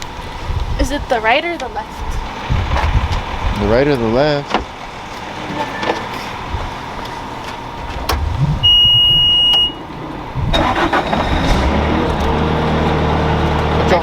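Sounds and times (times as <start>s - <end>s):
vehicle engine rumbling: 1.8s - 14.0s
loud electronic beep: 8.2s - 9.8s.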